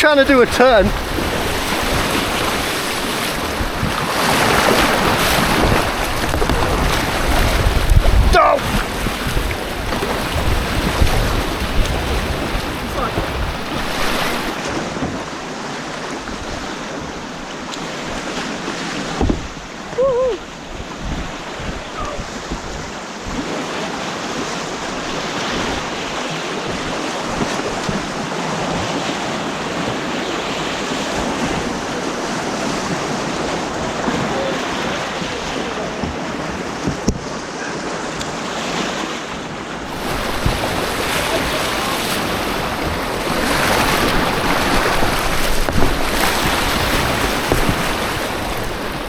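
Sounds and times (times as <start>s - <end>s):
wind on microphone: 0.0s - 15.4s, 16.0s - 37.9s, 39.9s - 49.0s
white water rushing and splashing: 0.0s - 49.0s
loud splashes or knocks: 0.5s - 15.3s, 39.9s - 49.0s.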